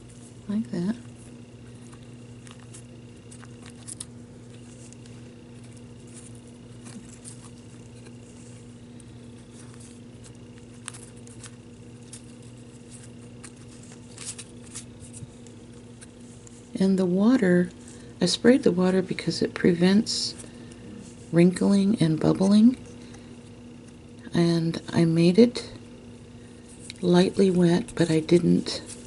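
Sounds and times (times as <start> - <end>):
tissue paper crinkling: 0.0 - 16.7
low electrical hum: 0.0 - 29.0.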